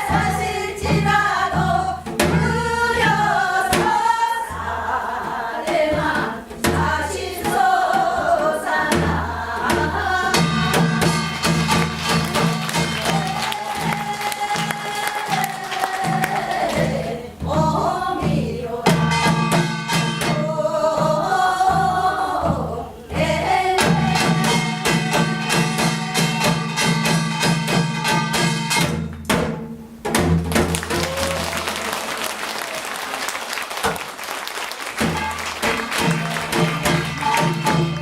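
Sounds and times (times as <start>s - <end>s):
person singing folk song: 0.0s - 25.4s
fast dense percussion: 0.0s - 32.5s, 34.9s - 38.0s.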